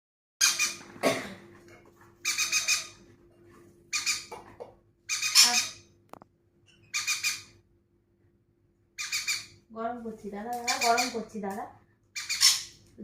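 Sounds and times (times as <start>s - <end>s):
parrot screeching: 0.4s - 0.9s, 2.2s - 3.0s, 3.9s - 4.3s, 5.1s - 5.9s, 6.7s - 7.6s, 9.0s - 9.6s, 10.7s - 11.3s, 12.2s - 12.8s.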